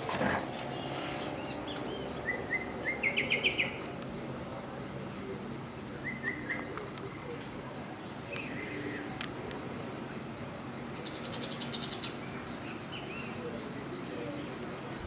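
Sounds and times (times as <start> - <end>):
insect trill: 0.0 - 15.0
bird chirps: 0.2 - 4.1, 5.6 - 9.2, 11.0 - 15.0.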